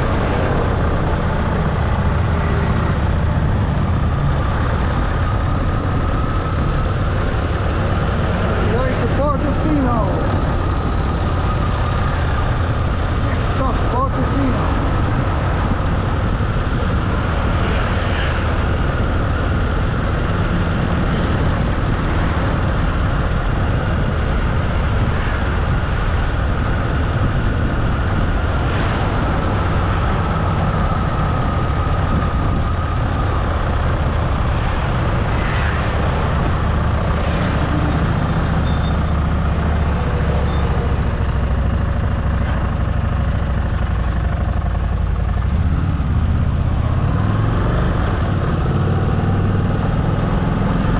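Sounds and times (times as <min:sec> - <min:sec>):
road noise: 0:00.0 - 0:50.9
wind noise: 0:00.0 - 0:50.9
motorcycle engine rumbling: 0:18.4 - 0:50.9.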